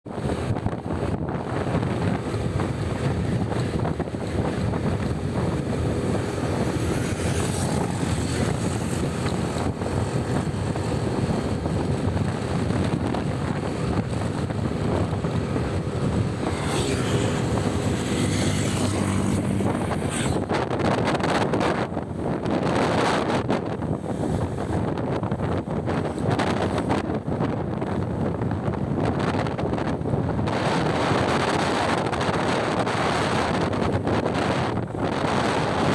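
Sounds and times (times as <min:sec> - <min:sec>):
wind rushing over microphone: 0:00.0 - 0:35.9
road noise: 0:00.1 - 0:35.9
motorcycle engine: 0:00.3 - 0:22.0.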